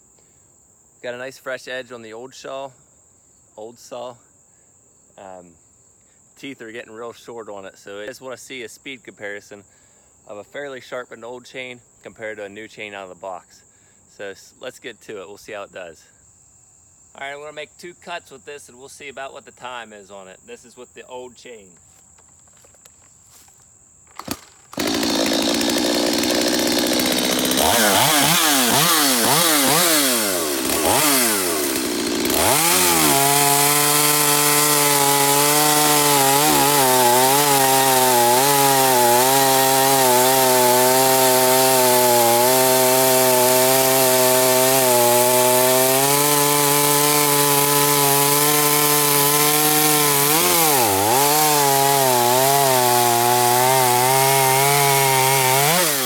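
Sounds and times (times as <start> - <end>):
chainsaw revving and cutting wood: 24.1 - 56.0.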